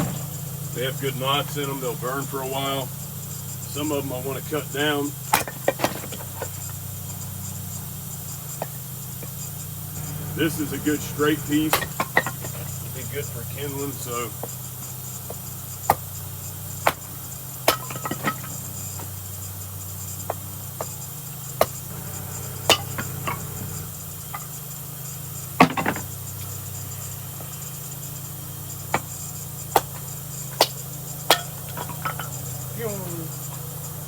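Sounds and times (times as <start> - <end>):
brief rattle: 0.0 - 0.6
axe chopping wood: 16.8 - 19.2, 29.7 - 32.5.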